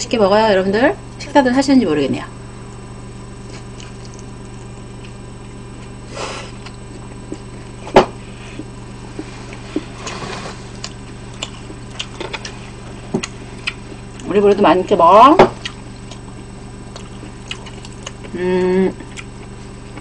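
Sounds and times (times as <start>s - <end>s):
steady electrical hum: 0.0s - 20.0s
chewing pizza: 3.4s - 14.4s, 15.6s - 20.0s.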